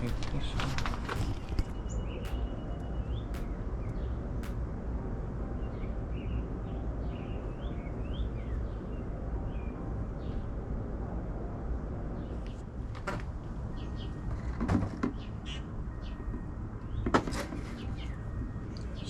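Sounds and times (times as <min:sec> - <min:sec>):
sharp clicks: 0:00.0 - 0:03.6
birds chirping: 0:00.0 - 0:04.2
steady low rumble: 0:00.0 - 0:06.6.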